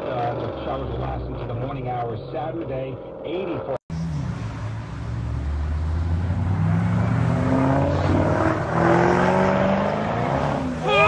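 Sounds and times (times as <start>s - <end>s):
car engine accelerating hard: 3.9s - 11.0s.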